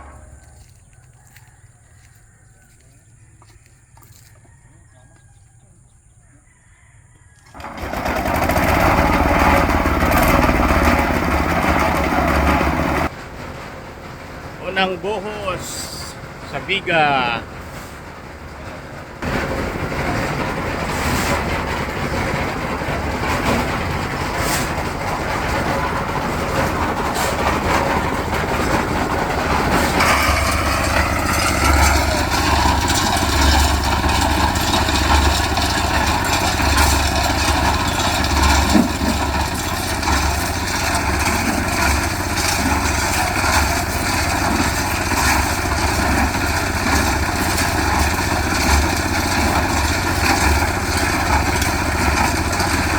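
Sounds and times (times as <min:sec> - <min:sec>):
small engine throbbing: 0:19.2 - 0:52.9.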